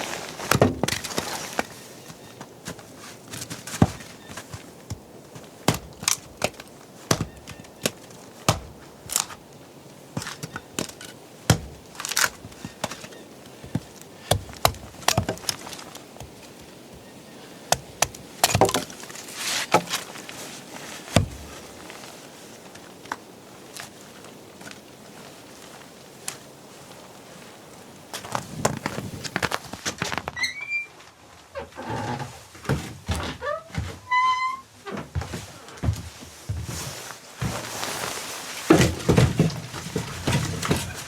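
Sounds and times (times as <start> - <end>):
wood cracking and crunching: 0.0 - 26.4, 37.4 - 41.0.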